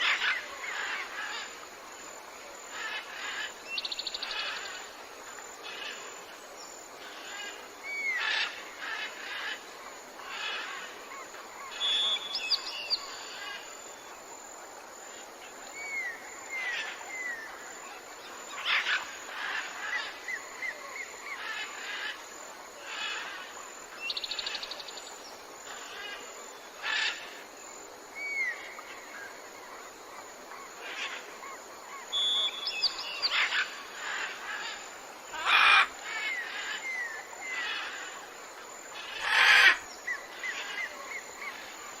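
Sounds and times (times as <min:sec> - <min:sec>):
insects droning: 0:00.0 - 0:42.0
harsh rasping bird calls: 0:32.2 - 0:38.0.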